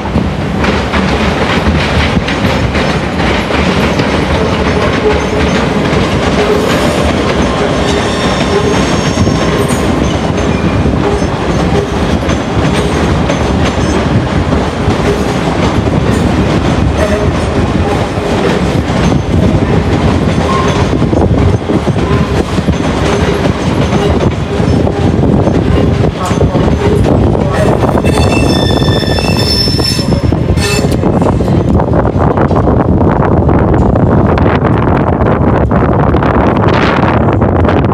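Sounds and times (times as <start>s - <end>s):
train rumbling past: 0.0s - 37.9s
wheels clattering over rail joints: 0.5s - 27.2s.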